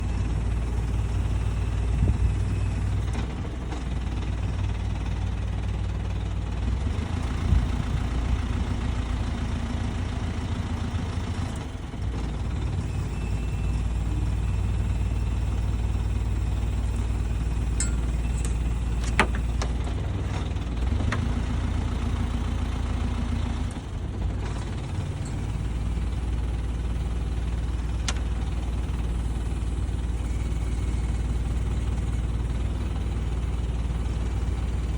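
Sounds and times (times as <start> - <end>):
engine idling: 0.0 - 34.9
sharp metallic clicks and knocks: 17.8 - 19.8.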